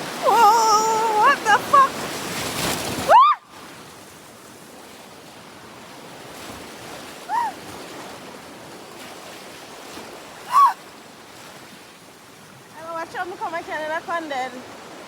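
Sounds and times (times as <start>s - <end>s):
river rapids rushing: 0.0s - 3.4s
woman shrieking: 0.2s - 1.9s, 3.1s - 3.5s, 7.3s - 7.6s, 10.5s - 10.8s.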